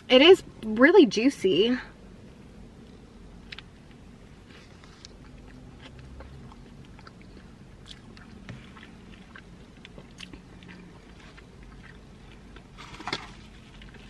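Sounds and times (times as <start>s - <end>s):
person chewing crispy food: 3.4s - 14.0s.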